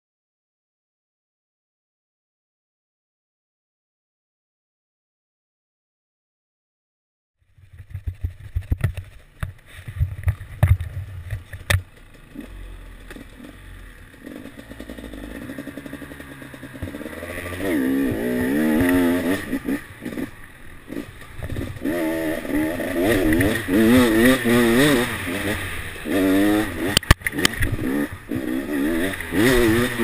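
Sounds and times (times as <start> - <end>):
engine knocks and blips: 7.5 - 30.0
motorcycle engine revving: 7.8 - 30.0.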